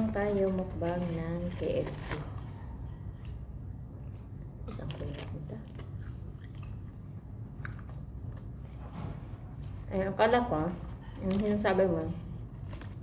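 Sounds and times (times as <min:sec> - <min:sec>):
low steady hum: 0:00.0 - 0:13.0
person chewing crisp food: 0:03.1 - 0:08.8.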